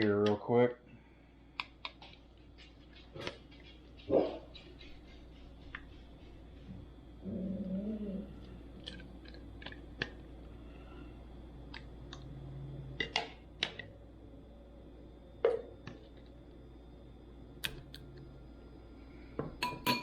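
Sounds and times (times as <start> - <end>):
kitchen containers and utensils clicking: 19.6 - 20.0.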